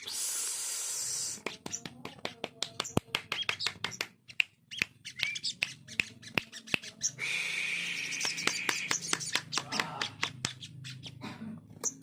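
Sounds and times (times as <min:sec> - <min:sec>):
bird chirps: 0:02.8 - 0:11.2, 0:11.8 - 0:12.0
bird sharp clicks: 0:08.1 - 0:10.7.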